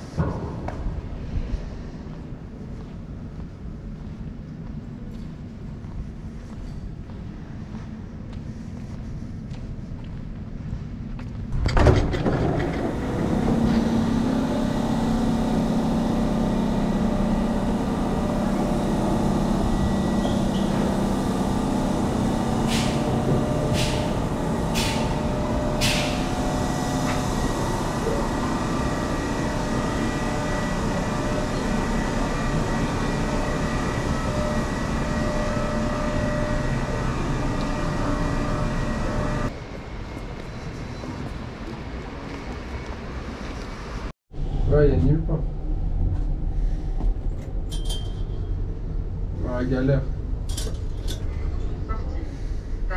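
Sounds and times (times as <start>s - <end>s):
large vehicle engine humming: 12.4s - 40.4s.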